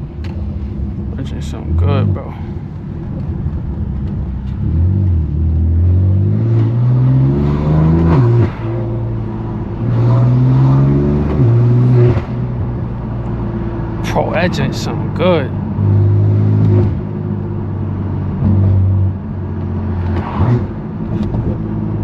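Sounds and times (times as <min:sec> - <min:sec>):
car engine accelerating: 0:00.2 - 0:22.0.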